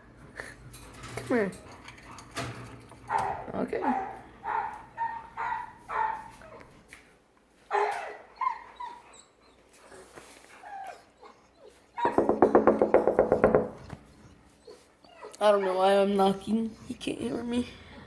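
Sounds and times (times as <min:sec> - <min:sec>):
dog whining and yelping: 0:07.7 - 0:12.2, 0:13.8 - 0:15.9
fast knocking: 0:12.0 - 0:13.9.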